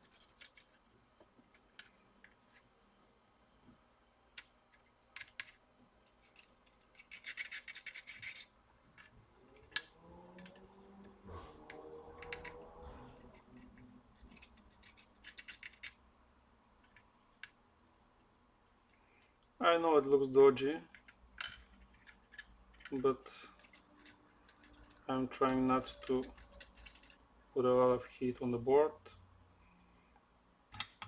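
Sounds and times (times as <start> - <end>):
metal tools scraping and clicking: 6.1 - 9.1, 20.9 - 27.2.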